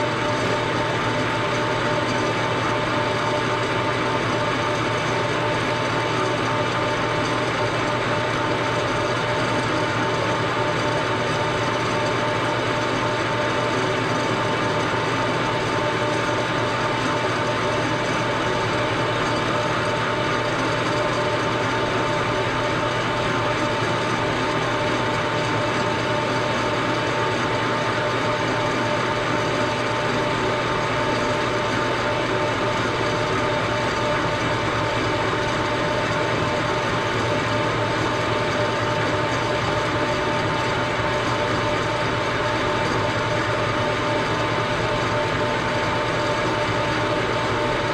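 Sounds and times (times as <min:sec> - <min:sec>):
machine tool running with whine: 0:00.0 - 0:47.9.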